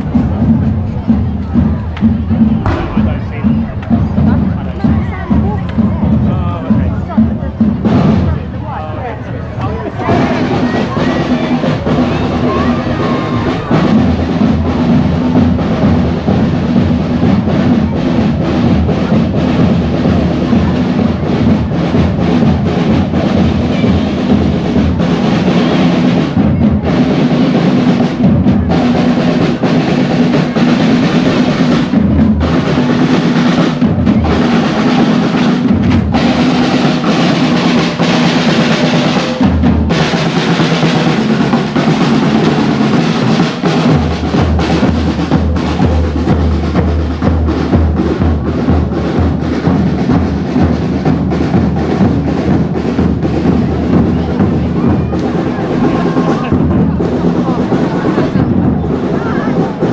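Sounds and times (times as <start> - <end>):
drum-led music: 0.0 - 59.9
steady low tone: 2.2 - 6.3.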